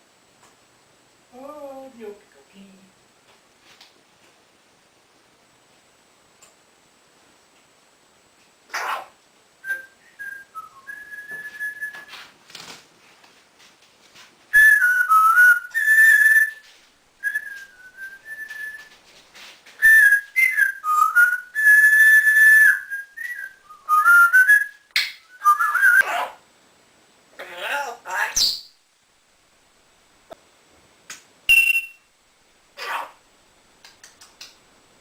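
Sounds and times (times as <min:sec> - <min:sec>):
parrot whistling: 0:14.5 - 0:16.6, 0:19.8 - 0:26.1, 0:31.5 - 0:32.0.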